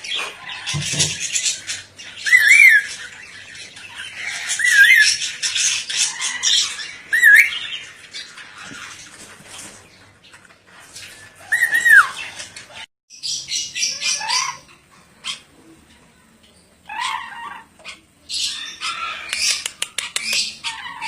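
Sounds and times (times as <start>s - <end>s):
lorikeet squawking and chattering: 0.0s - 8.9s, 11.2s - 12.4s, 13.1s - 15.6s, 16.8s - 21.0s.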